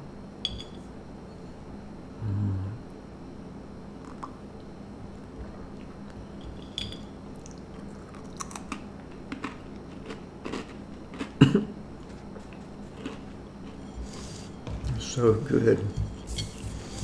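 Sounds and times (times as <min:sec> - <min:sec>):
chewing crunchy cracker: 0:07.4 - 0:13.8.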